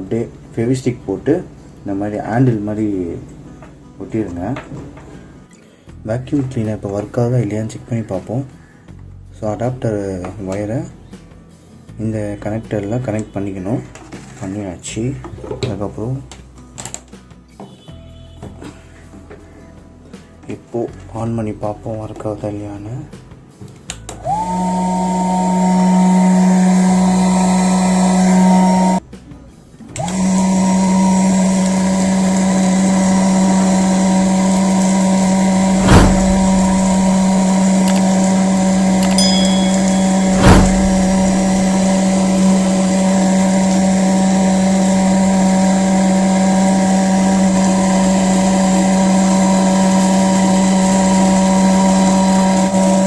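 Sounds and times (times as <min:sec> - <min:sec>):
electric motor and fan whine: 0:24.2 - 0:29.0, 0:30.0 - 0:53.0
sharp knocks: 0:39.5 - 0:42.0.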